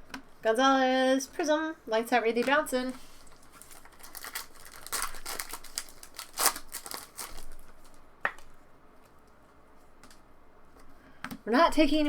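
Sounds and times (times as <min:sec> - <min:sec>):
cards rustling: 0:02.3 - 0:09.4
foil wrappers crinkling and tearing: 0:02.9 - 0:08.0.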